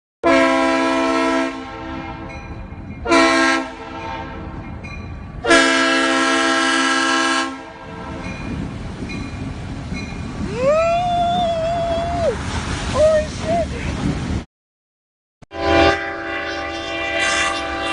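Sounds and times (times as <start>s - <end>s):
multi-note air horn blasts: 0.2s - 2.3s, 3.0s - 4.4s, 5.4s - 8.2s, 15.5s - 17.9s.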